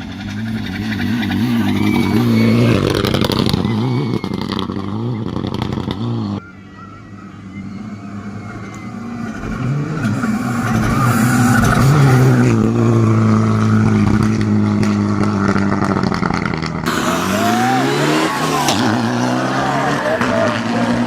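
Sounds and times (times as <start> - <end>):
rally car engine accelerating: 0.0 - 6.4, 7.6 - 21.0.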